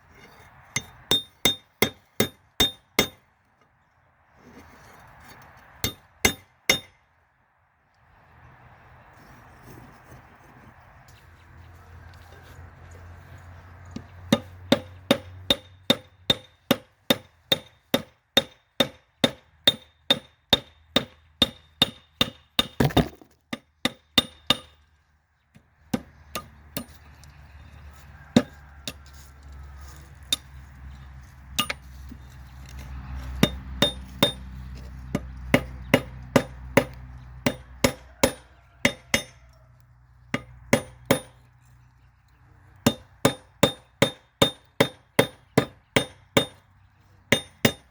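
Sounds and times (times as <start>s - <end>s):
hammer striking steel on anvil: 0.8s - 3.2s, 5.8s - 7.0s, 14.3s - 22.4s, 31.6s - 31.8s, 33.4s - 34.4s, 35.1s - 39.4s, 40.4s - 41.4s, 42.8s - 46.6s, 47.3s - 47.9s.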